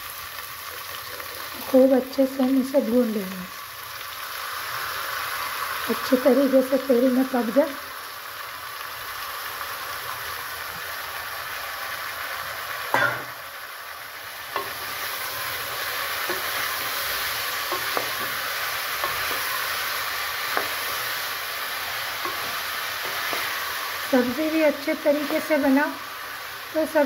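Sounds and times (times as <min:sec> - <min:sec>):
vegetables sizzling in hot oil: 0:00.0 - 0:27.0.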